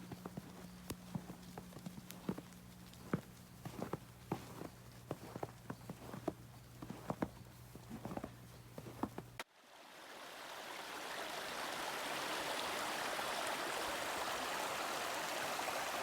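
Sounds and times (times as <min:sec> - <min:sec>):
footsteps or taps: 0:00.1 - 0:09.4
stream flowing: 0:09.4 - 0:16.0.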